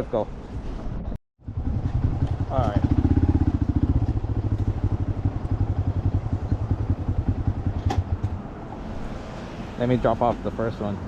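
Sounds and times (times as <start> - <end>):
motorcycle engine puttering: 1.4 - 8.5.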